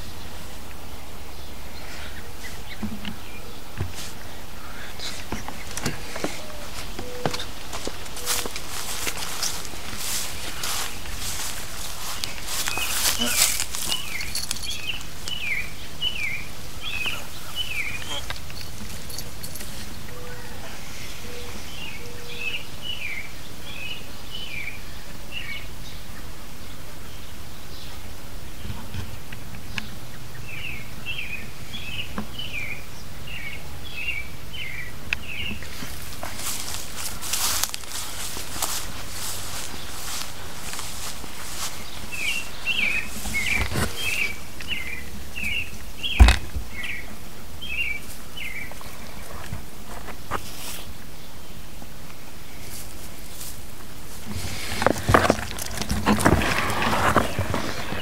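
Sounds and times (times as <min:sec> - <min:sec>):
outdoor background noise: 0:00.0 - 0:58.0
songbird chirping: 0:00.0 - 0:58.0
sharp thump: 0:46.2 - 0:46.6.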